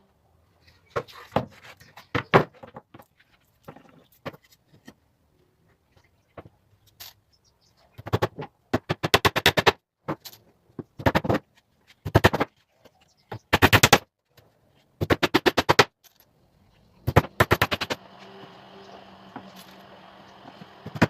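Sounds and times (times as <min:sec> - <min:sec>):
faint steady hum: 0:16.2 - 0:21.0
hammer driving nails into wood: 0:17.0 - 0:18.0.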